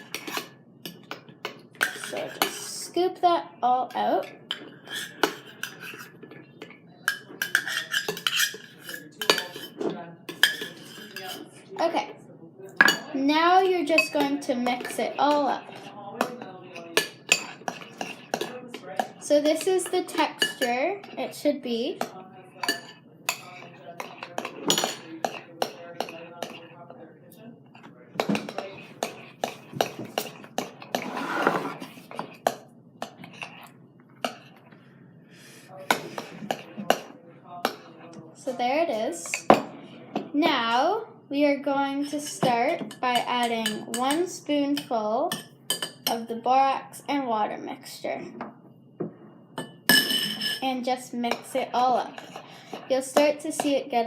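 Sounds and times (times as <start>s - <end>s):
utensil scraping a bowl: 0.0s - 1.2s, 1.8s - 3.0s, 4.4s - 6.4s, 7.1s - 11.6s, 13.5s - 39.8s, 51.3s - 53.8s.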